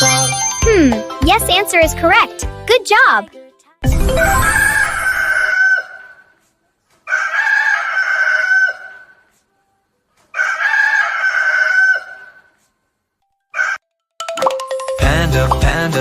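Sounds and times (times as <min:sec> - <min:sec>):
rooster crowing: 0:07.1 - 0:09.1, 0:10.3 - 0:12.4, 0:13.6 - 0:13.8.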